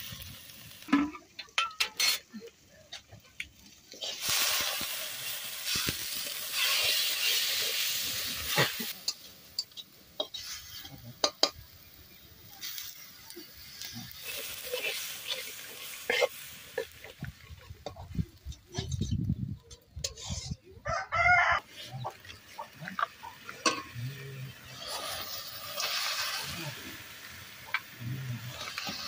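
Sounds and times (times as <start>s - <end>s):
frying sizzle: 0.0s - 29.0s
metal spatula scraping a wok: 1.0s - 2.3s, 3.9s - 11.5s, 12.6s - 17.2s, 17.8s - 20.6s, 21.7s - 26.6s, 28.4s - 29.0s.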